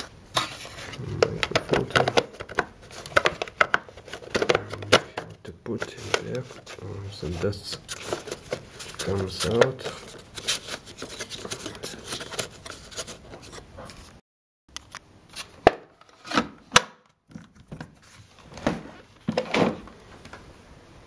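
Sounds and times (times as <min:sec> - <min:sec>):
plastic parts rubbing: 0:00.0 - 0:14.1.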